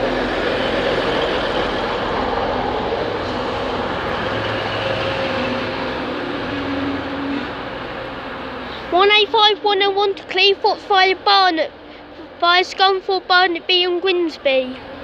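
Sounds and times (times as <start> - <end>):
diesel train engine drone: 0.0 - 15.0
faint rising hum: 0.0 - 15.0.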